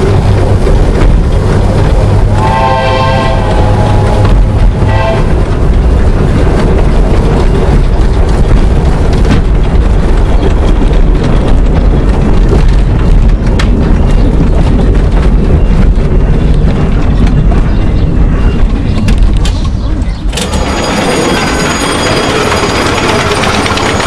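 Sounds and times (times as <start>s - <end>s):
wind noise on microphone: 0.0s - 21.7s
miniature train rumbling: 0.0s - 24.0s.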